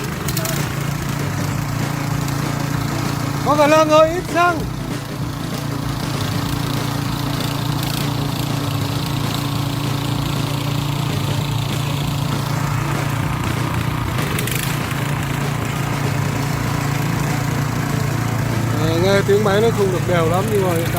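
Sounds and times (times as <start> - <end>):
petrol engine running: 0.0 - 20.9.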